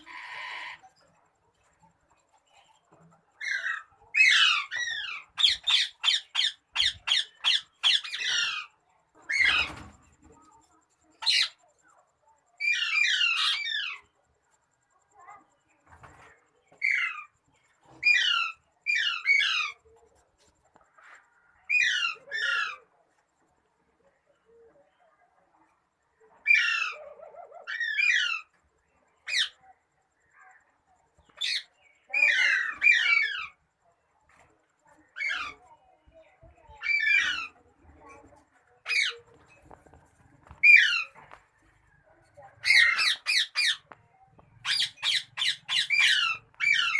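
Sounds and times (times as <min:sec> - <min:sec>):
parrot squawking: 0:36.8 - 0:37.6, 0:42.6 - 0:43.9, 0:44.6 - 0:46.9.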